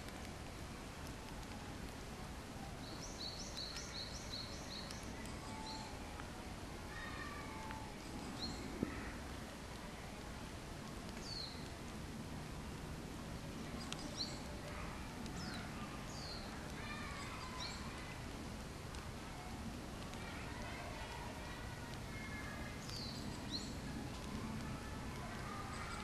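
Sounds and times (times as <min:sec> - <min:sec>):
background noise: 0:00.0 - 0:26.0
small bird chirping: 0:02.8 - 0:06.0.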